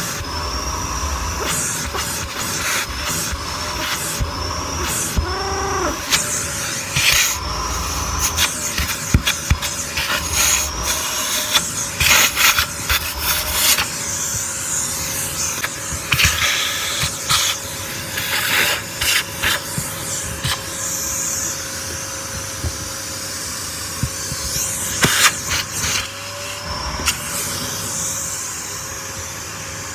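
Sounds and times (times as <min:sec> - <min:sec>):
vacuum cleaner motor whine: 0:00.0 - 0:29.9.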